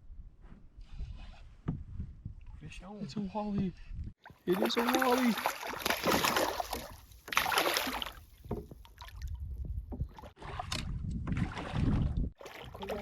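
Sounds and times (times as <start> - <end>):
wind buffeting microphone: 0.0 - 4.2, 8.4 - 13.0.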